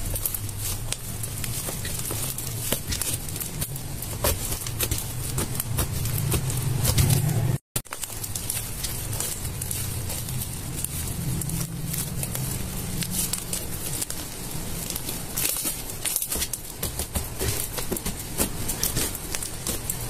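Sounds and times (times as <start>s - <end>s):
low hum: 0.0s - 15.4s
slime squishing: 0.0s - 20.0s.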